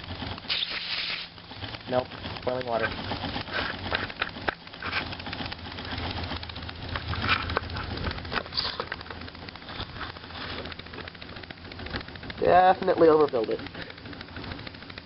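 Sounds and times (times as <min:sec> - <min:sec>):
toy steam engine spitting hiss: 0:00.5 - 0:01.4.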